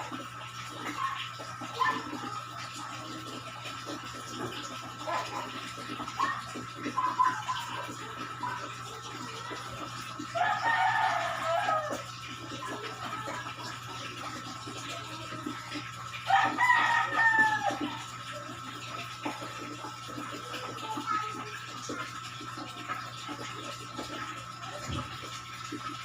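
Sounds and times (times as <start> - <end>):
rooster crowing: 10.4 - 12.1, 16.3 - 18.0.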